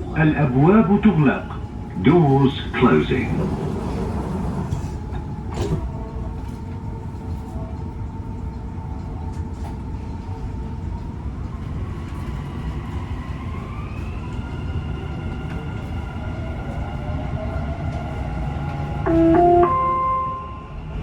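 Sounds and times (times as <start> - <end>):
train low rumble: 0.0 - 21.0.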